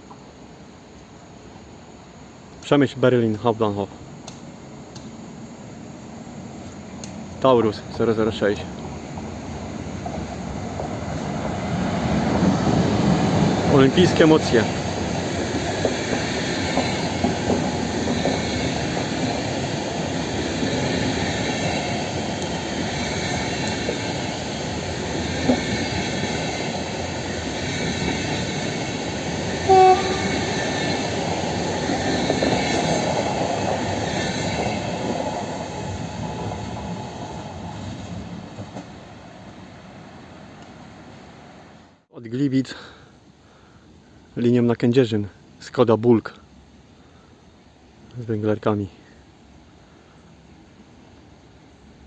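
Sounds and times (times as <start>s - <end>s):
train wheel and rail noise: 0.0s - 42.0s
train horn blip: 29.7s - 30.4s.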